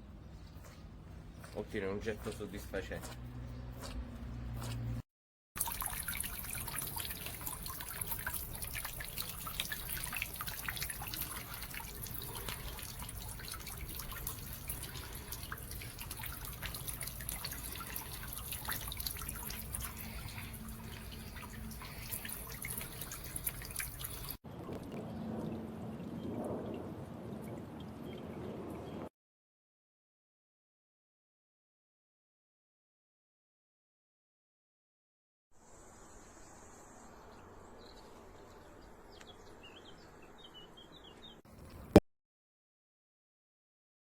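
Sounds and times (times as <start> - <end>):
fountain water dripping and splashing: 5.6 - 25.0.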